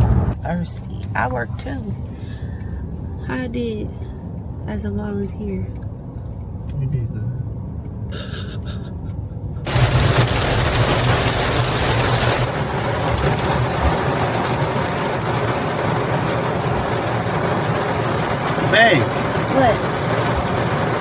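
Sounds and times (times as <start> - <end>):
loud rushing crackling noise: 9.7 - 21.0.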